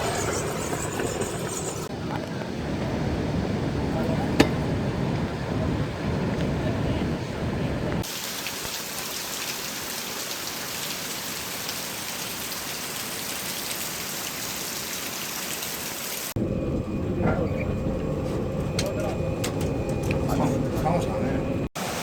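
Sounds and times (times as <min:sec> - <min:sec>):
rain hissing: 0:08.0 - 0:16.4
low rumbling noise: 0:16.4 - 0:21.7.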